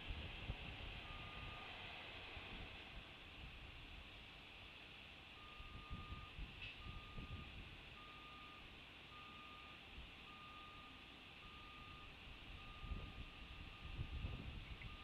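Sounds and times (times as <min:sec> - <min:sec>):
vehicle reversing alarm beeps: 0:01.0 - 0:01.7, 0:05.4 - 0:15.0.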